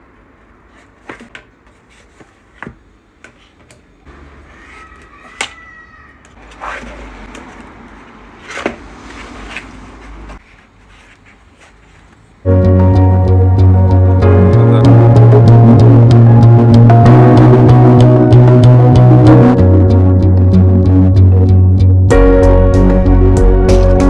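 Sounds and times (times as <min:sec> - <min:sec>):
packaging rustling and sliding: 0:06.4 - 0:12.5.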